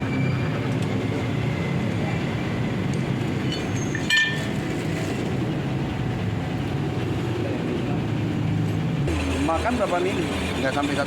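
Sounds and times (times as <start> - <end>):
short metallic clink: 3.5 - 4.5
boring machine humming: 5.3 - 11.0.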